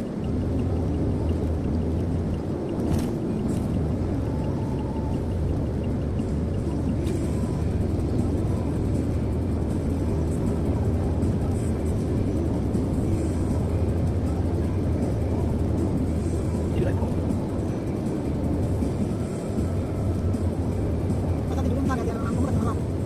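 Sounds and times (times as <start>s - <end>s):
car cabin road noise: 0.0s - 23.0s.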